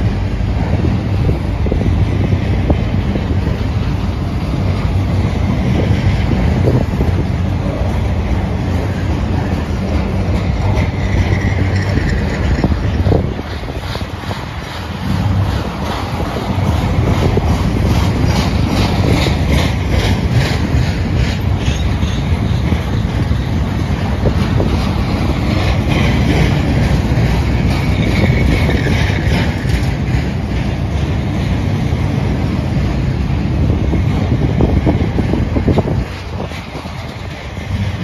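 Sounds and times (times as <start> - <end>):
train wheels rumbling on rail: 0.0 - 38.0
wheels clicking over track: 0.0 - 38.0
high wheel squeal: 8.8 - 14.6, 21.2 - 23.3.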